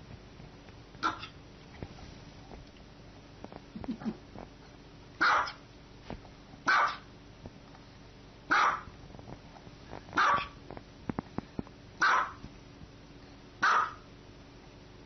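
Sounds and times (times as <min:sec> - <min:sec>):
small dog barking: 0:01.0 - 0:01.4, 0:05.2 - 0:05.6, 0:06.7 - 0:07.1, 0:08.5 - 0:08.9, 0:10.2 - 0:10.6, 0:12.0 - 0:12.4, 0:13.6 - 0:14.1.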